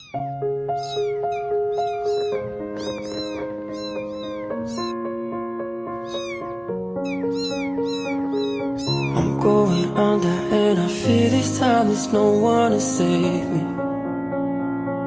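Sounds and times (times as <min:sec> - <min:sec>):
cat meowing: 0:00.0 - 0:05.1, 0:05.9 - 0:10.0.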